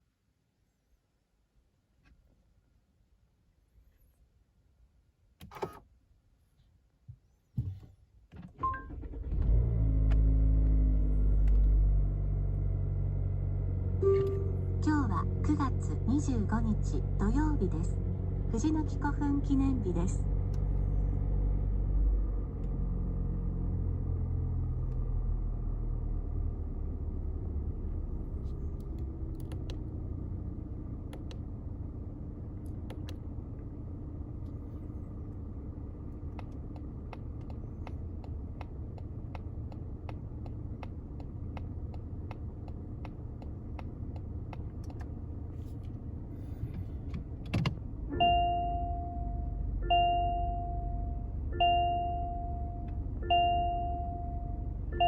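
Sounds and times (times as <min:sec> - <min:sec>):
car engine idling: 0:08.9 - 0:55.0
reverse-gear chime dinging: 0:14.0 - 0:14.8.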